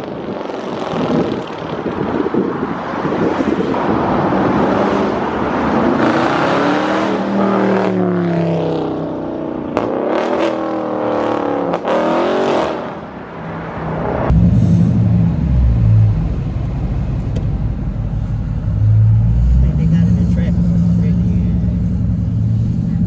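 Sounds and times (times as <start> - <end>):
car engine accelerating: 13.7 - 23.0
heavy low rumble: 14.1 - 23.0.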